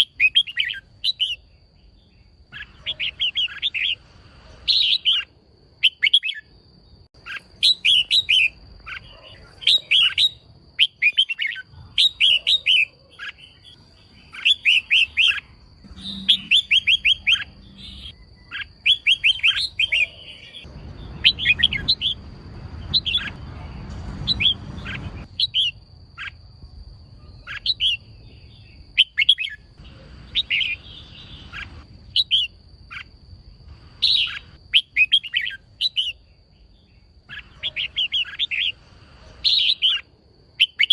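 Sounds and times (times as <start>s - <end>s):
bird chattering chirps: 0.0s - 1.5s, 2.4s - 6.5s, 7.2s - 26.4s, 27.1s - 33.2s, 34.0s - 38.8s
faint steady high tone: 13.4s - 21.4s
low rumble: 20.7s - 25.4s.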